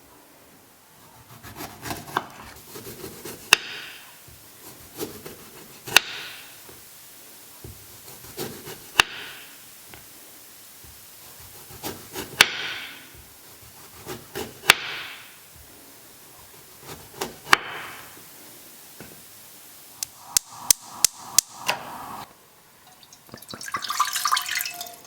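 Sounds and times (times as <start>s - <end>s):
knife striking wooden board: 12.4s - 13.0s, 14.4s - 15.2s
brief hiss: 19.9s - 22.3s.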